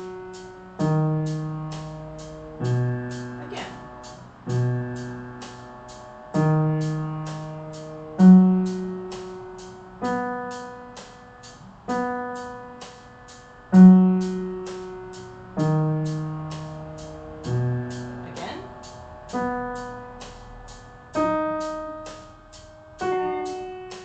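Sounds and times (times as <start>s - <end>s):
piano arpeggio: 0.0s - 24.0s.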